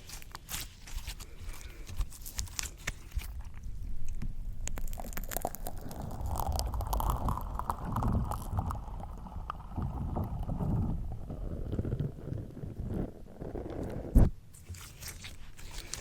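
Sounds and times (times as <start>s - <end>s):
slime squelching on microphone: 0.0s - 16.0s.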